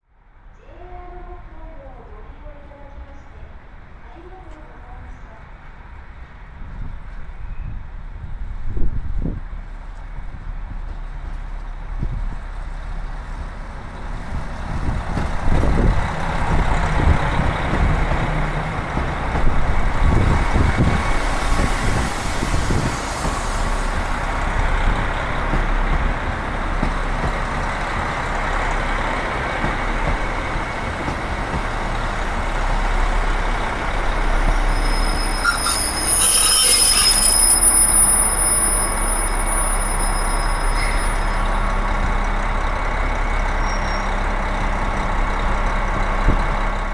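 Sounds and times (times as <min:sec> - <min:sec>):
diesel train engine: 0:00.2 - 0:46.9
wheels rumbling over rails: 0:08.1 - 0:46.9
high-pitched squeal: 0:33.8 - 0:41.6.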